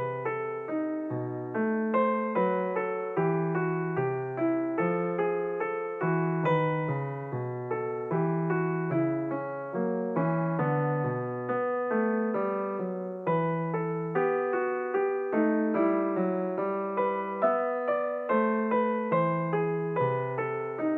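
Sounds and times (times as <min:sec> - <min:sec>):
slow piano melody: 0:00.0 - 0:20.9.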